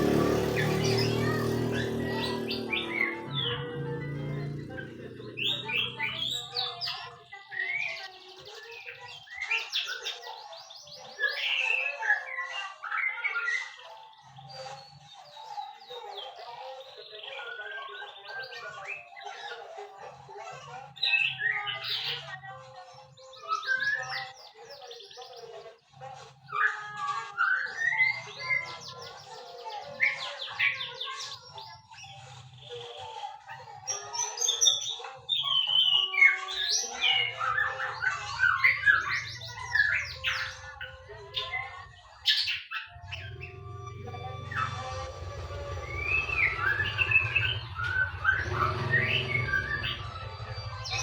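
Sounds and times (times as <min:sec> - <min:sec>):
songbird whistling and trilling: 0:05.4 - 0:19.6, 0:20.9 - 0:25.7, 0:26.4 - 0:51.0
bird singing whistles: 0:42.3 - 0:51.0.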